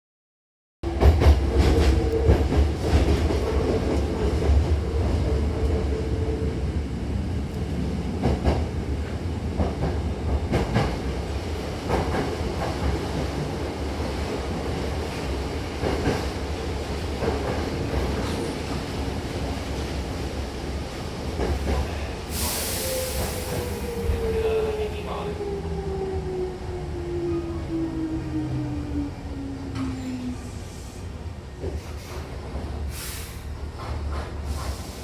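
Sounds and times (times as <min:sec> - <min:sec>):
electric train rumbling: 0:00.8 - 0:35.0
compressed-air hiss: 0:22.3 - 0:23.7.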